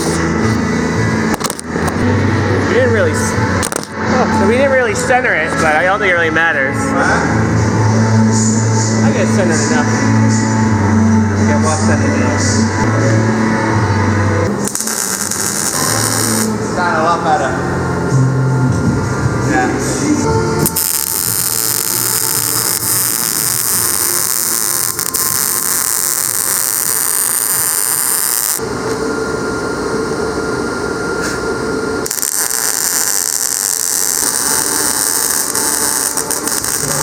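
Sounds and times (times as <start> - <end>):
welder sizzling crackle: 0.0 - 0.6, 1.3 - 2.0, 3.6 - 4.0, 14.5 - 16.5, 20.6 - 28.6, 32.0 - 37.0.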